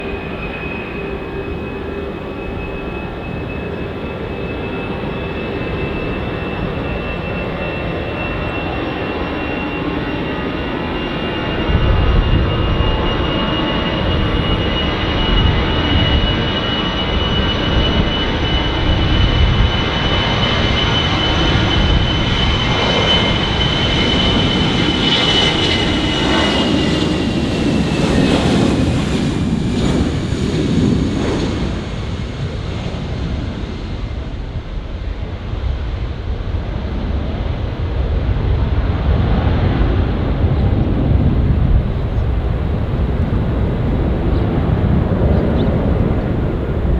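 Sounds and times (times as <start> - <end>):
jet engine fan whine: 0.0 - 46.9
jet engine low rumble: 0.0 - 46.9.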